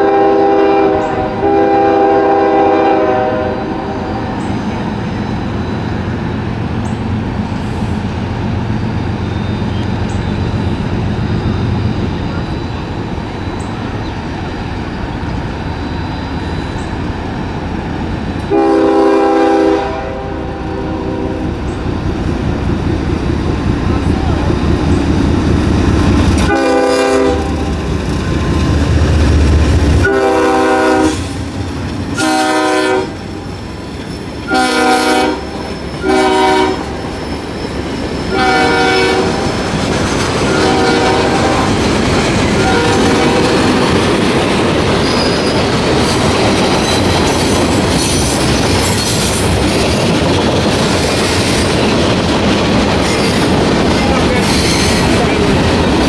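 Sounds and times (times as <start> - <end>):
locomotive horn blasts: 0.0 - 4.4, 18.5 - 21.6, 26.4 - 28.5, 29.9 - 31.4, 32.2 - 33.4, 34.4 - 37.0, 38.3 - 39.6, 40.5 - 41.8, 42.6 - 43.8
freight cars wheels on rail: 0.0 - 56.0
locomotive engine rumble: 3.1 - 56.0.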